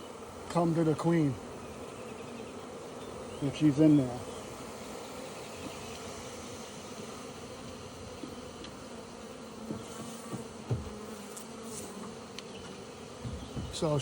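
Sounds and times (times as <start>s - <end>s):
bee swarm buzzing: 0.0s - 14.0s
soft knocks: 9.7s - 11.0s, 13.2s - 14.0s.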